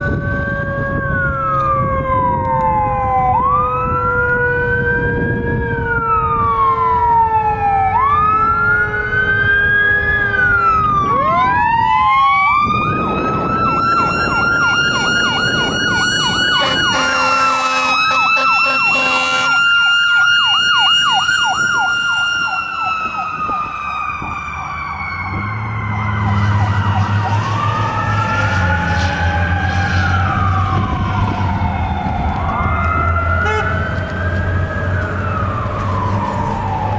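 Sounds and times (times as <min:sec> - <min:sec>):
fire engine siren wailing: 0:00.0 - 0:36.9
second siren high tone: 0:12.6 - 0:34.0
horn blasts: 0:16.6 - 0:19.7, 0:26.3 - 0:27.0, 0:33.4 - 0:33.9.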